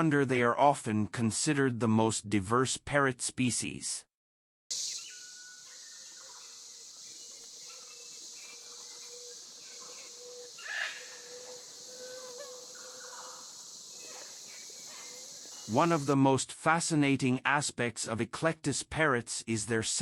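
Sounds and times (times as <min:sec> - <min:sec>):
short bird calls: 0:04.7 - 0:16.1
insects droning: 0:04.7 - 0:16.2.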